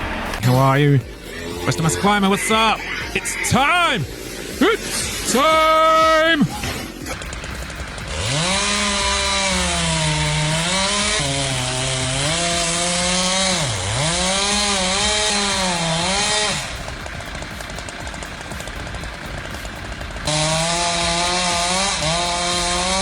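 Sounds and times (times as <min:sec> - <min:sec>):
chainsaw cutting wood: 0:00.0 - 0:23.0.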